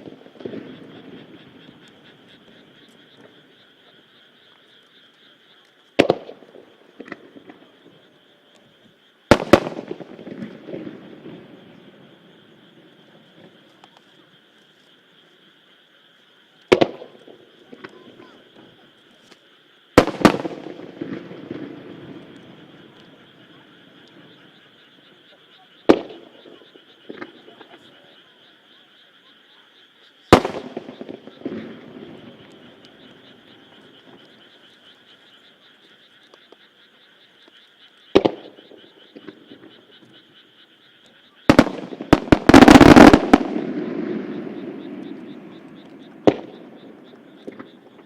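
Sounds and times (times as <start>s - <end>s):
crackling rolling echo: 0.0s - 15.9s, 16.5s - 28.2s, 30.1s - 48.0s
firework shells bursting: 9.3s - 11.4s, 20.0s - 22.3s, 30.3s - 33.0s, 41.5s - 47.8s.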